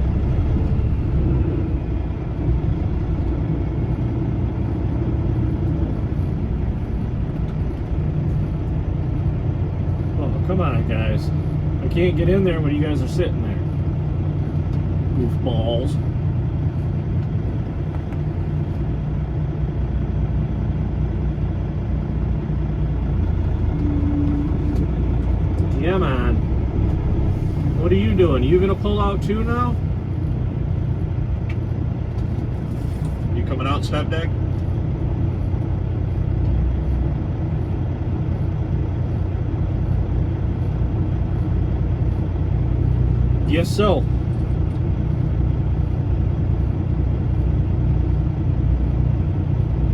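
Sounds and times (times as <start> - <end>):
diesel truck engine running: 0.0 - 49.9.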